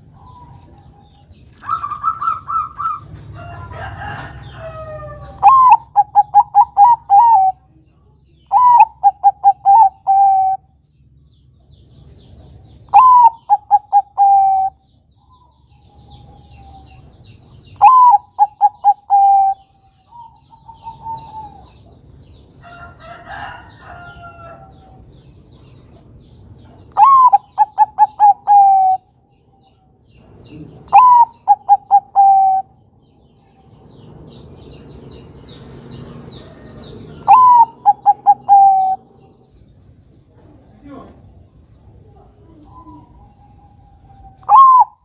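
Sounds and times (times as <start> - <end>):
dove cooing: 1.6 - 3.1, 4.8 - 7.7, 8.5 - 10.7, 12.9 - 14.8, 17.8 - 21.9, 26.9 - 29.1, 30.6 - 32.8, 36.4 - 39.4, 42.0 - 45.0.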